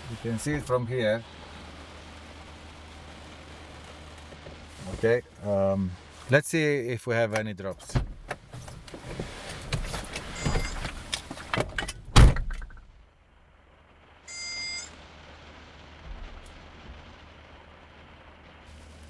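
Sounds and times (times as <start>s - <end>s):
rain: 0.0s - 19.0s
car door shutting: 7.8s - 12.9s
short electronic beep: 10.4s - 10.8s, 14.3s - 14.9s.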